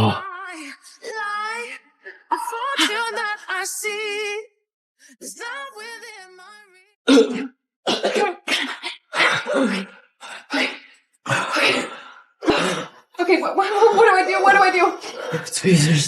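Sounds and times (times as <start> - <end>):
person coughing harshly: 7.1 - 9.9, 11.3 - 13.0.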